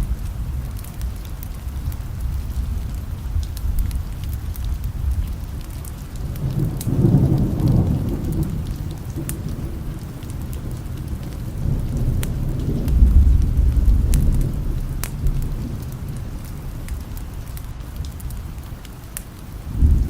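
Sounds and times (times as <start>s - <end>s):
distant thunder rolling: 0.0s - 18.8s, 19.4s - 20.0s
steady rain: 0.0s - 20.0s.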